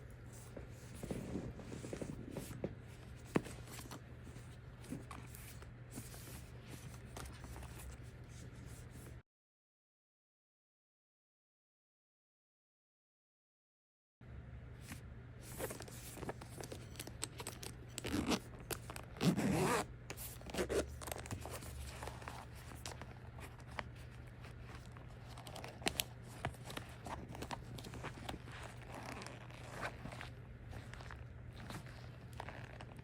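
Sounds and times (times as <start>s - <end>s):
steady low hum: 0.0s - 9.2s, 14.2s - 33.0s
packaging scraping and rustling: 15.5s - 33.0s.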